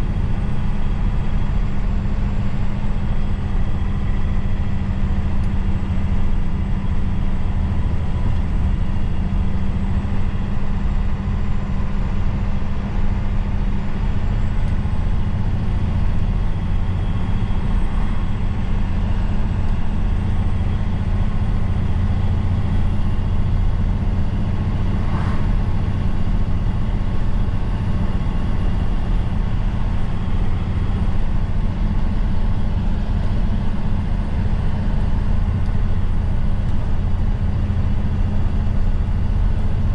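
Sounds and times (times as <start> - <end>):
diesel truck engine droning: 0.0 - 39.9.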